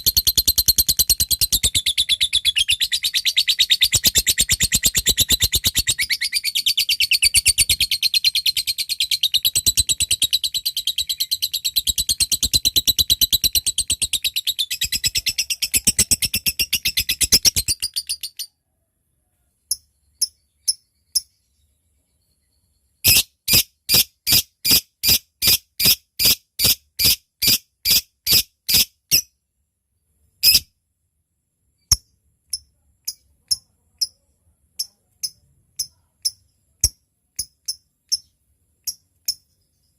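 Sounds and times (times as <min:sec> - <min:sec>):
lovebird shrill chattering trill: 0:00.0 - 0:18.5, 0:23.0 - 0:29.2.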